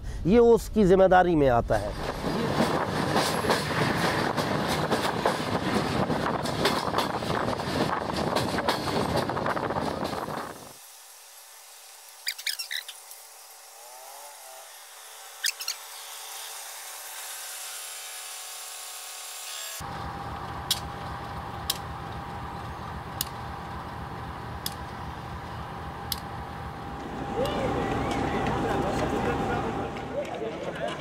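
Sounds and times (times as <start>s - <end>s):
diesel locomotive engine: 1.7s - 11.8s, 19.8s - 31.0s.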